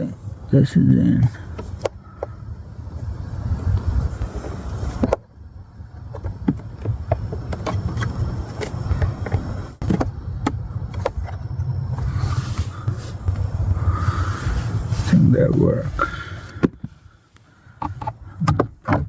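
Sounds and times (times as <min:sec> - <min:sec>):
steady low rumble: 0:00.0 - 0:18.9
plastic clicks and knocks: 0:17.8 - 0:19.0.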